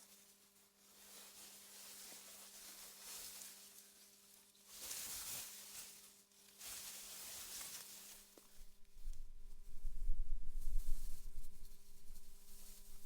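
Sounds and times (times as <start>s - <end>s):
wind blowing through grass: 8.5s - 13.0s
faint hum: 8.7s - 13.0s.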